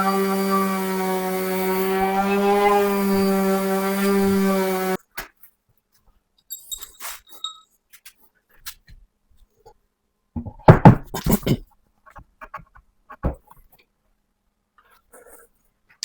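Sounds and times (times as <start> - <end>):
power tool motor humming: 0.0 - 5.0.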